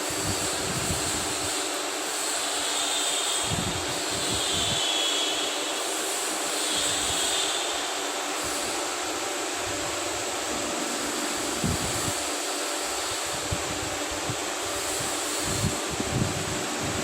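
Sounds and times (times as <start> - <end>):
high whine of drives: 7.7 - 14.8.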